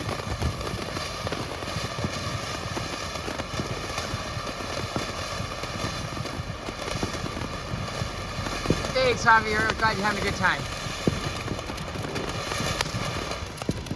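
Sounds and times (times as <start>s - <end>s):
crackling pops: 0.0s - 13.9s
firework fountain hissing: 0.0s - 13.9s.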